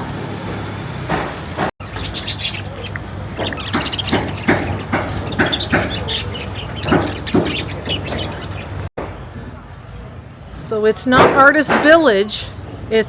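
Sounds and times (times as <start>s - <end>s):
bird chirping: 1.8s - 8.9s.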